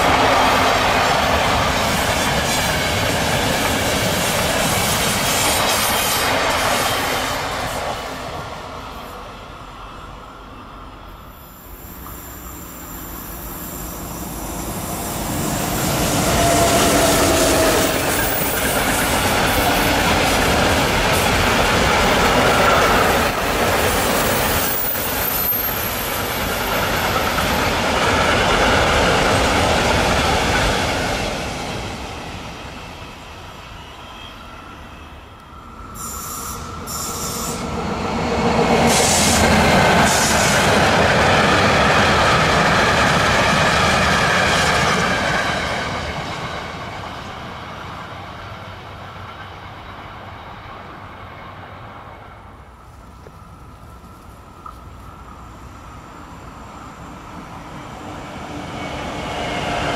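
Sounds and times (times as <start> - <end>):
freight train rolling past: 0.0 - 59.9
second train passing: 0.0 - 59.9.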